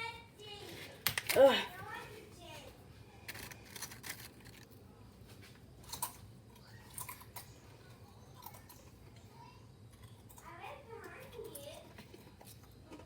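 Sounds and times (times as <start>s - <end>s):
potato chips being chewed: 3.3s - 4.8s, 5.4s - 9.1s, 9.9s - 13.0s.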